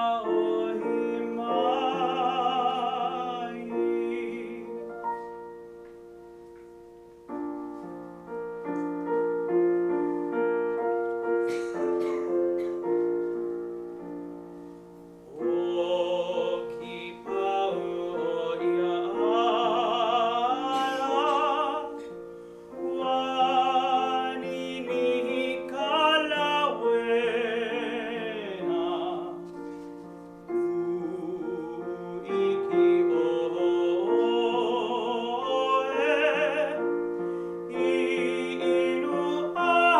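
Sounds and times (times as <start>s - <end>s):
man singing with vibrato: 0.0s - 5.0s, 15.2s - 29.8s, 30.4s - 39.9s
piano accompaniment: 0.0s - 39.9s
singer breathing: 37.2s - 37.7s.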